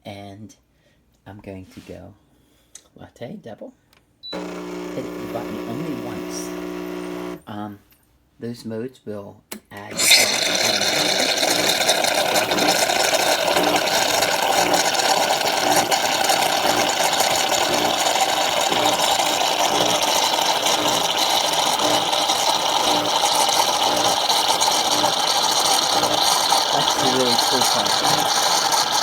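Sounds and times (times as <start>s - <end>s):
espresso machine pump buzzing: 4.4s - 7.4s, 9.9s - 29.0s.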